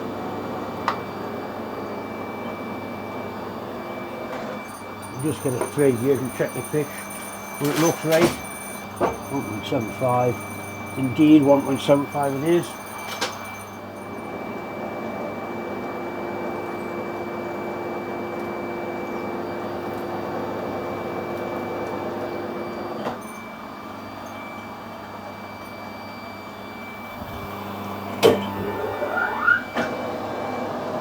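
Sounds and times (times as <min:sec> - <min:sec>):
metal lathe humming: 0:00.0 - 0:15.8, 0:26.4 - 0:29.7.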